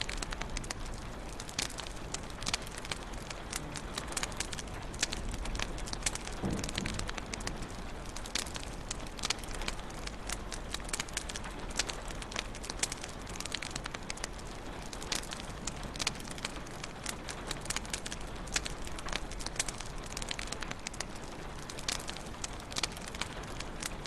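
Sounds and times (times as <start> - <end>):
sharp pops and snaps: 0.0 - 24.0
wood fire crackling: 0.0 - 24.0.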